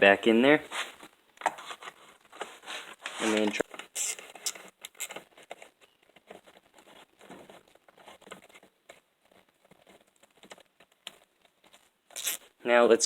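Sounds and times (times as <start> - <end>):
metal parts clicking and scraping: 3.0 - 5.7.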